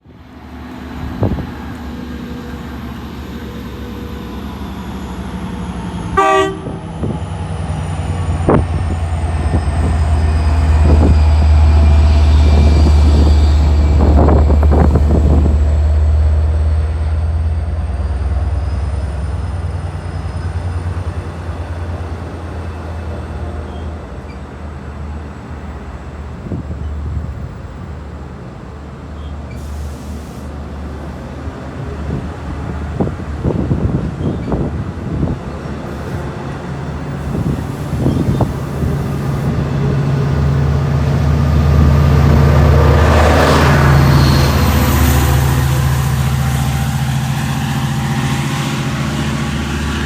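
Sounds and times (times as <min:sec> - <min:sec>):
train rumbling past: 0:00.0 - 0:50.0
train horn toot: 0:06.1 - 0:06.8.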